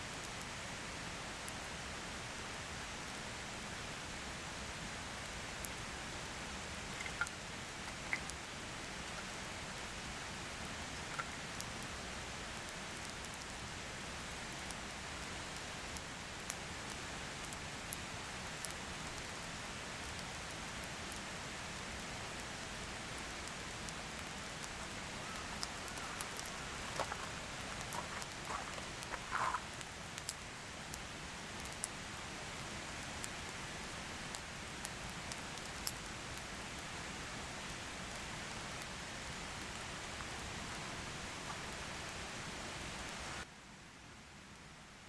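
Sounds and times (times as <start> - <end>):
steady rain hiss: 0.0 - 45.0
raindrops ticking: 6.7 - 9.8, 10.6 - 11.8, 21.9 - 36.4, 38.1 - 42.4.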